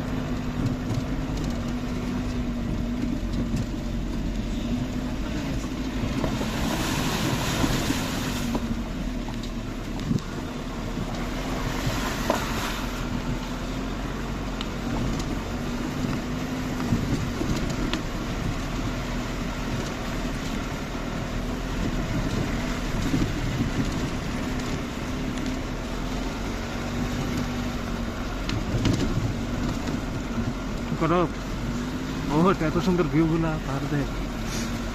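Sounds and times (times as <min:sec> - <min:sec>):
vehicle engine and road rumble: 0:00.0 - 0:34.9
short rushes of hiss: 0:34.4 - 0:34.8.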